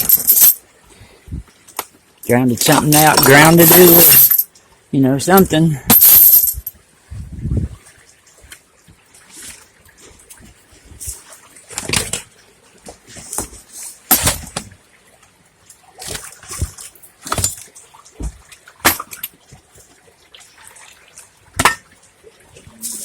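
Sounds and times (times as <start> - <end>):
floodwater splashing: 7.9 - 23.0
faint trickle of running water: 14.7 - 23.0.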